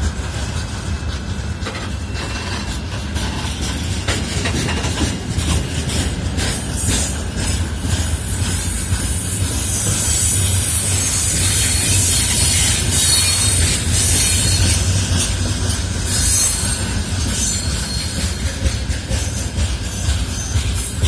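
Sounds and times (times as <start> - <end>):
freight train rumbling: 0.0 - 21.0
wheels clicking over rail joints: 0.0 - 21.0
high wheel squeal: 6.4 - 15.4, 16.1 - 21.0.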